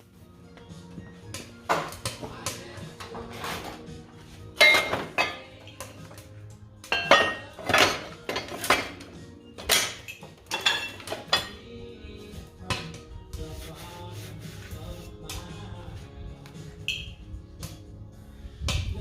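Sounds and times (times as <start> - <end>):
background music: 0.0 - 19.0
metal clinking and knocking: 4.6 - 6.2, 6.9 - 11.6.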